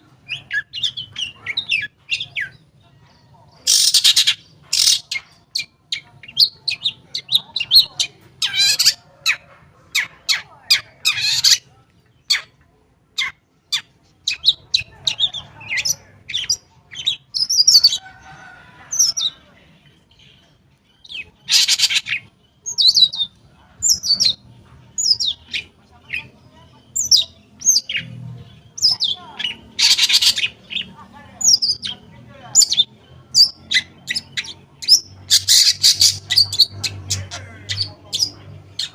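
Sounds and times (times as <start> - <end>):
bird singing chirps and trills: 0.1 - 12.6, 13.2 - 38.9
harsh rasping bird notes: 27.0 - 38.9.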